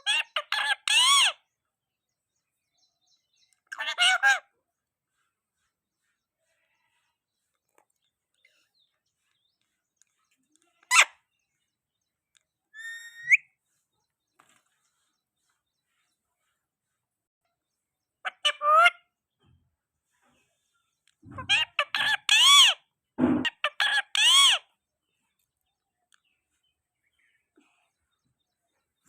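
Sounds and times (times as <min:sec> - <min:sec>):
parrot squawking and whistling: 0:12.8 - 0:13.5.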